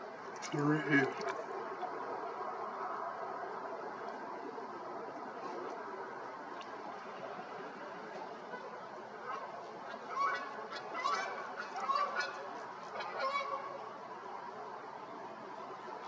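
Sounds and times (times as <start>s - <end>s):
steady background noise: 0.0s - 16.0s
honking bird calls: 8.3s - 14.1s.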